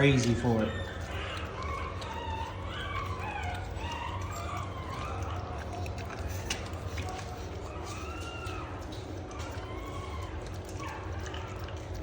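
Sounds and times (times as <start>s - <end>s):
puppies whining and yelping: 0.0s - 12.0s.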